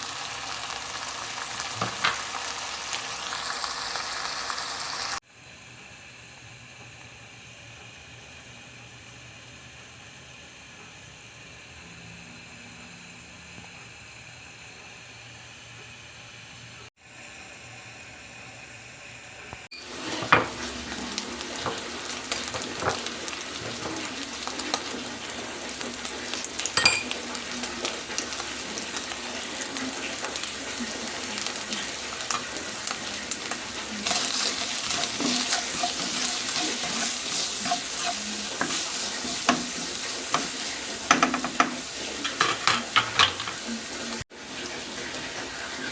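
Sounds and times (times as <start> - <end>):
food sizzling in a pan: 0.0 - 5.2, 19.7 - 45.9
spatula scraping a pan: 19.8 - 24.9, 33.8 - 43.7.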